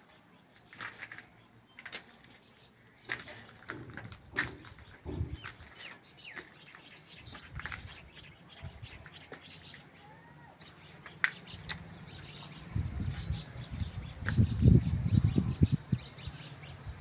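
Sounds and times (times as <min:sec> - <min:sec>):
birds chirping: 0:00.0 - 0:17.0
light knocks and thumps: 0:03.1 - 0:05.7.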